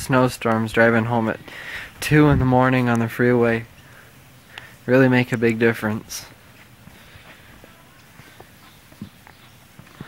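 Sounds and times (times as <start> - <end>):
low background hiss: 0.0 - 10.0
faint footsteps: 6.2 - 10.0.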